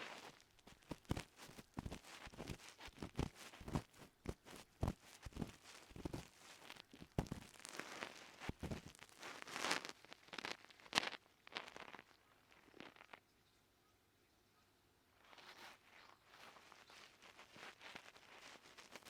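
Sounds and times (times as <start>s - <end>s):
ear pick scraping inside ear: 0.0s - 9.8s.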